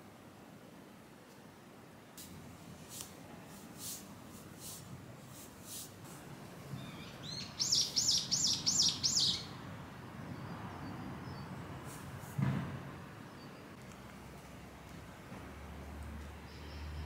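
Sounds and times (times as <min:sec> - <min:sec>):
small bird singing high notes: 0:06.8 - 0:09.5.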